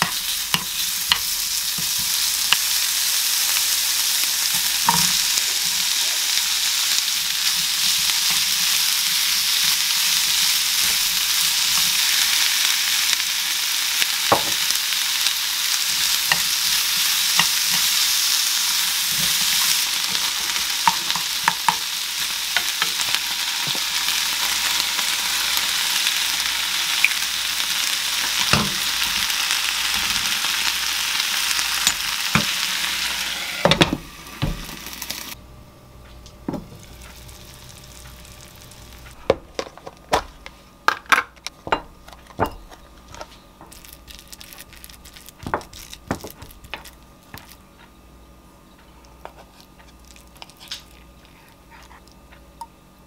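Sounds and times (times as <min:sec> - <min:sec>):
food sizzling in a frying pan: 0:00.0 - 0:35.4, 0:36.6 - 0:39.2.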